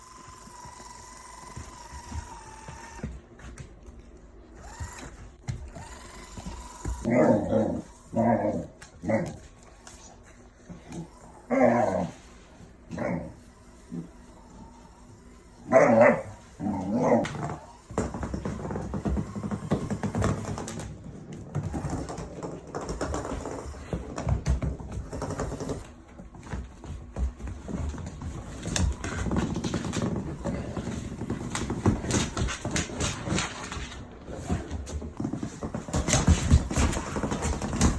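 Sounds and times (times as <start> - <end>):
small motor whining: 0.0 - 3.1, 4.6 - 7.1
paws and ball thumping: 0.1 - 11.2, 16.0 - 37.9.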